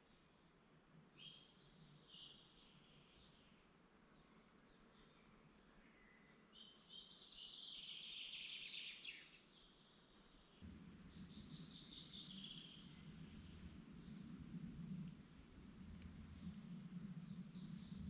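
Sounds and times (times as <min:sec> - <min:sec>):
songbird singing: 0:00.0 - 0:18.0
low steady rumble: 0:10.6 - 0:18.0.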